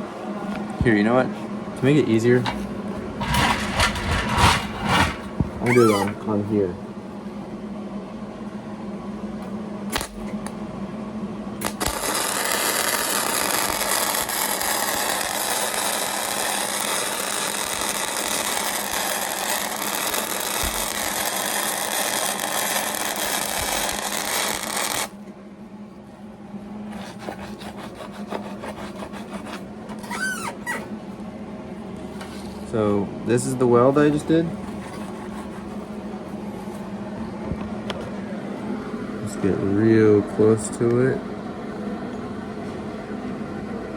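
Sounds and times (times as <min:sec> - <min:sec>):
welder arc strikes: 0:09.9 - 0:10.3, 0:11.6 - 0:25.2
welder arc crackling: 0:11.6 - 0:25.2.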